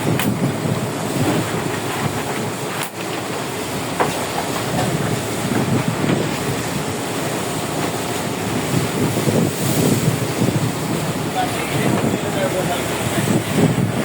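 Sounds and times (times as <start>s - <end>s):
steady low rumble: 0.0s - 14.0s
waves washing against hull: 0.0s - 14.0s
wind buffeting microphone: 0.0s - 14.0s.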